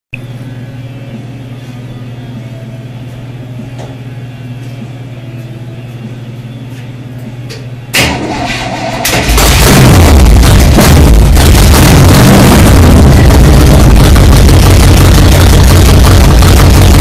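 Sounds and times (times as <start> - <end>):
engine firing: 7.9 - 17.0
engine cranking drone: 8.0 - 17.0.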